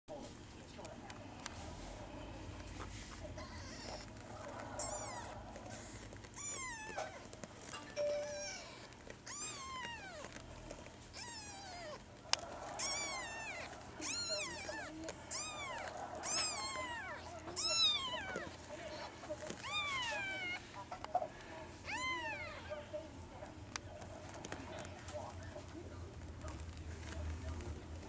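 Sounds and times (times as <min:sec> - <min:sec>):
kittens mewing: 0:03.3 - 0:07.4, 0:08.0 - 0:10.5, 0:11.1 - 0:22.9.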